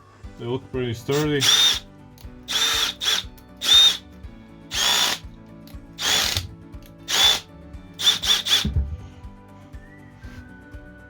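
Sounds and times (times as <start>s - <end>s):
power tool motor whine: 1.4s - 1.8s, 2.5s - 4.0s, 4.7s - 5.2s, 6.0s - 6.5s, 7.1s - 7.4s, 8.0s - 8.7s.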